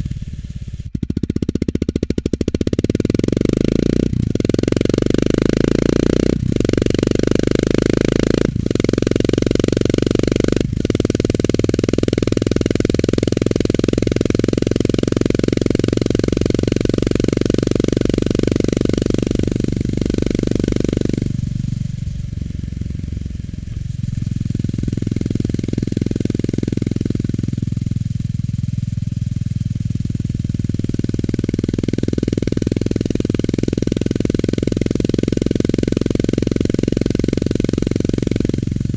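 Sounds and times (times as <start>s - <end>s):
motorcycle engine thudding: 9.8s - 34.9s.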